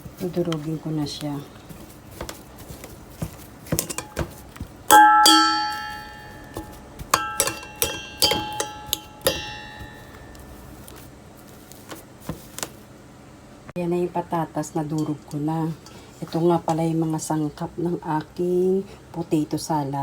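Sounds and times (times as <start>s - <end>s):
utensil knocking on metal bowl: 3.7s - 10.6s.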